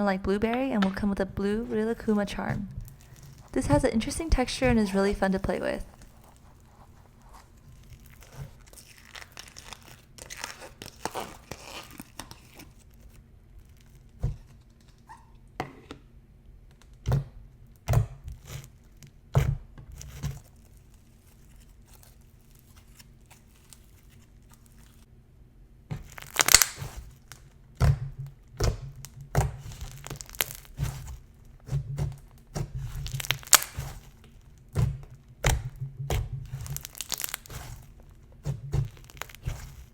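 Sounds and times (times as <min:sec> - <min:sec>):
slime crackling: 0:00.2 - 0:14.2, 0:20.1 - 0:25.1, 0:26.0 - 0:27.6, 0:28.6 - 0:39.9
slime crunching and popping: 0:07.3 - 0:14.2, 0:26.0 - 0:39.9.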